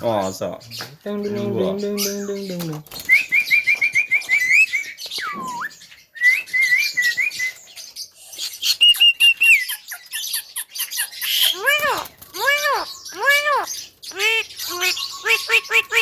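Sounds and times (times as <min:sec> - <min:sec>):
bird squeaky chirps: 0:01.4 - 0:16.0.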